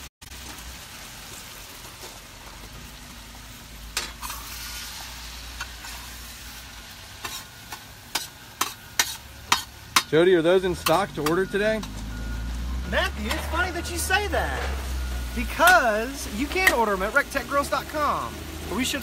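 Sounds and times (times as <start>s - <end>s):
bacon sizzling in a pan: 0.0s - 19.0s.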